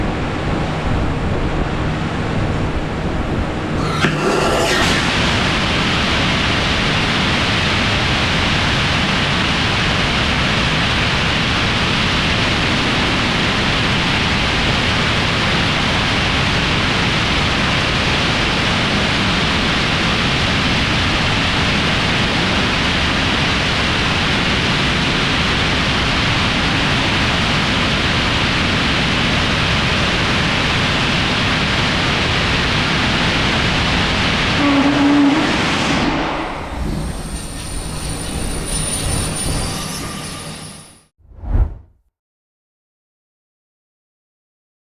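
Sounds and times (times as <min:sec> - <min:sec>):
rocket engine roaring: 0:03.7 - 0:08.0.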